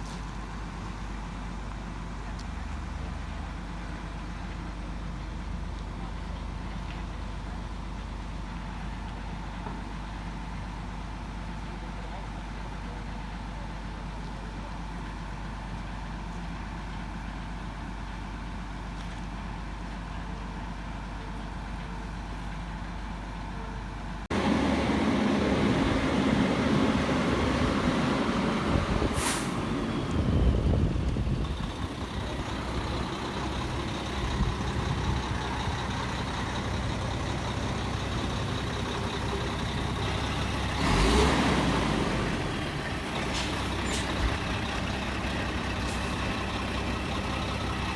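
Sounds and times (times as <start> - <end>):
heavy vehicle engine idling: 0.0 - 47.9
air hiss: 29.0 - 29.7.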